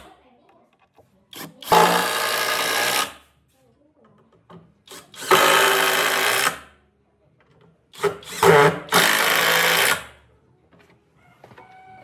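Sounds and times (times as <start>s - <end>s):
electric power tool running: 1.4s - 3.2s, 4.9s - 6.6s, 8.0s - 10.1s.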